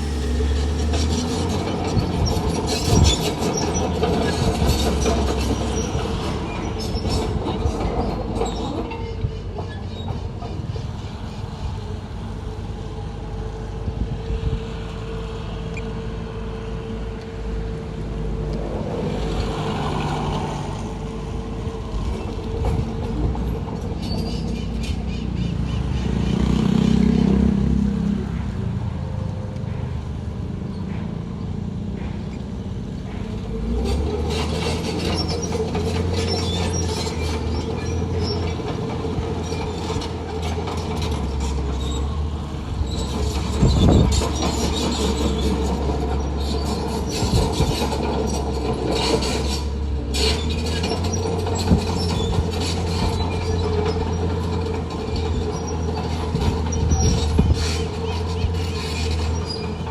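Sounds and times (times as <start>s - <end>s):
diesel engine under load: 0.0s - 59.9s
metallic squeaks and clanks: 0.4s - 11.6s, 22.1s - 27.2s, 29.7s - 59.9s.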